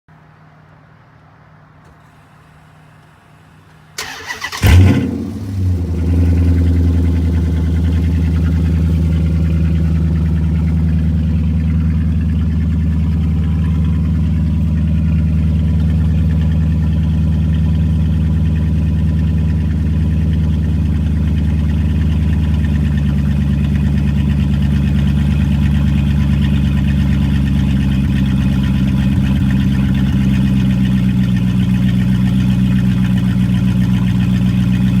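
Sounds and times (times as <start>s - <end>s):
starter motor cranking: 4.0s - 5.7s
car engine revving and idling: 4.0s - 35.0s.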